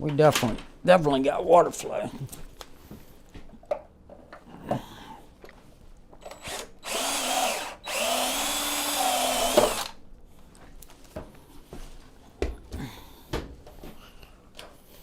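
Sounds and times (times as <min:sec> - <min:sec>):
power tool motor whining: 0:06.2 - 0:10.0.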